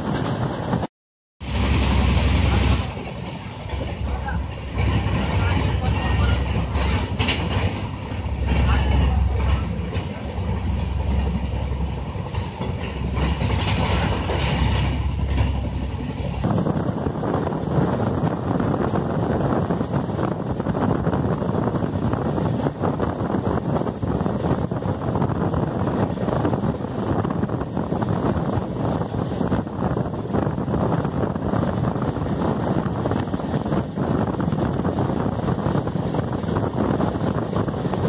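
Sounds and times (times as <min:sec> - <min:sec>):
rushing air at open door: 0:00.0 - 0:09.4, 0:10.0 - 0:38.0
train wheels rumbling on rails: 0:00.0 - 0:38.0.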